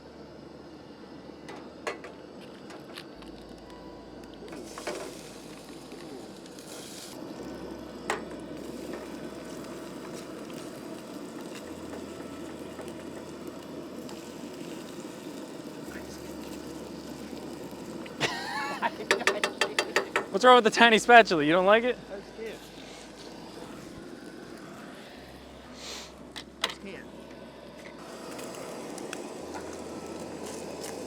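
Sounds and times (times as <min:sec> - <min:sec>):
oil sizzling in a frying pan: 0:04.5 - 0:21.6, 0:28.0 - 0:31.0.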